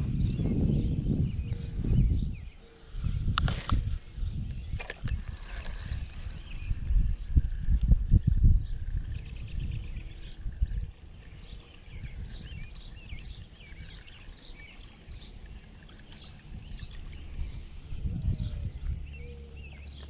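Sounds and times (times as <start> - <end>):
birds singing: 0.0 - 3.7, 4.3 - 20.0
low rumble on microphone: 0.0 - 20.0.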